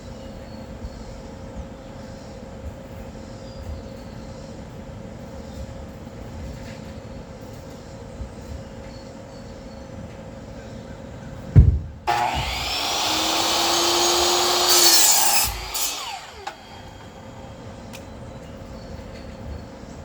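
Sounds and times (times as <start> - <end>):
power saw cutting lumber: 12.1 - 17.9.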